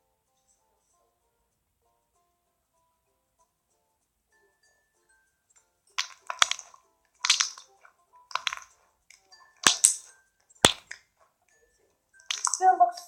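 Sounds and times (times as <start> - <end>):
slime sticky clicks and pops: 6.0 - 7.7, 8.3 - 8.7, 9.6 - 11.0, 12.3 - 12.6.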